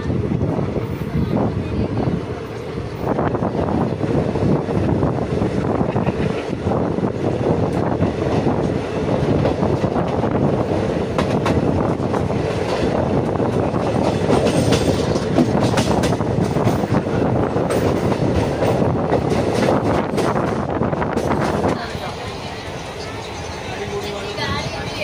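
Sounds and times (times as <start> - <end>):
train coaches rumbling: 0.0 - 25.0
wheels clicking over rail joints: 11.1 - 17.0.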